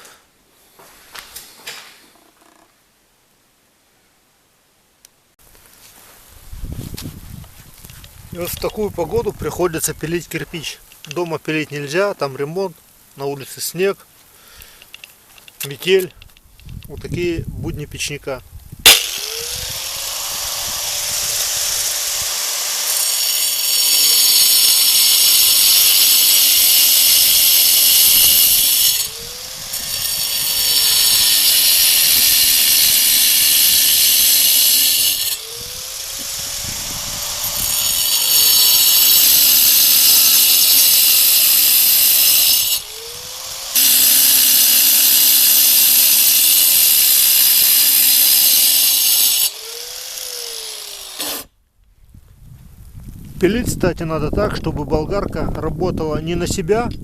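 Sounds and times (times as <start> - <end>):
angle grinder cutting brick: 18.9 - 51.6.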